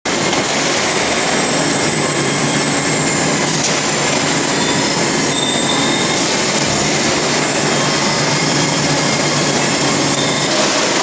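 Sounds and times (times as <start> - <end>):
industrial machinery rush: 0.1 - 11.0
thin high whine: 0.3 - 11.0.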